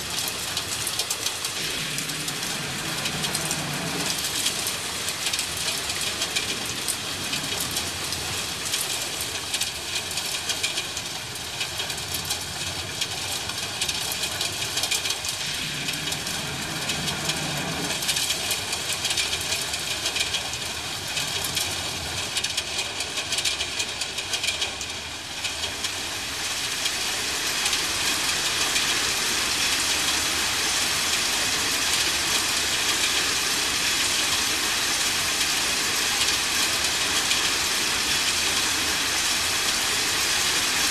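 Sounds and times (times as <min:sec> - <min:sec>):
steady rain falling: 0:00.0 - 0:40.9
low rumble of thunder: 0:01.5 - 0:08.1, 0:13.8 - 0:21.7.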